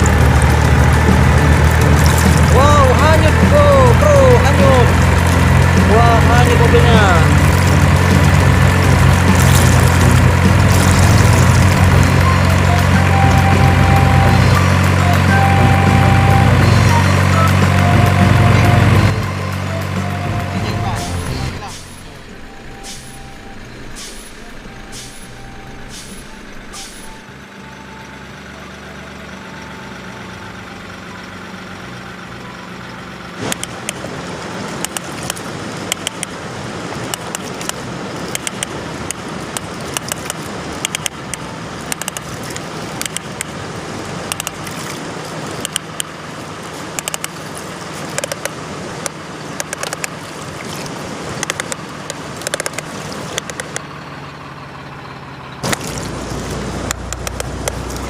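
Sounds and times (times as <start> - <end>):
diesel truck engine running: 0.0 - 58.0
light regular ticking: 34.8 - 36.4, 37.1 - 43.6, 45.5 - 46.2, 46.8 - 47.4, 48.1 - 50.2, 51.4 - 53.9, 56.8 - 58.0.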